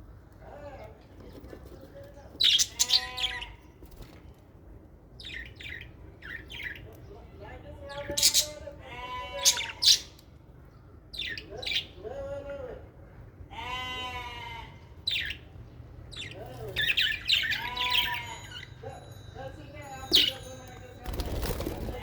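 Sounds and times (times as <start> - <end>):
parrots shrieking and squawking: 2.4 - 3.7, 8.0 - 10.2, 16.2 - 19.2.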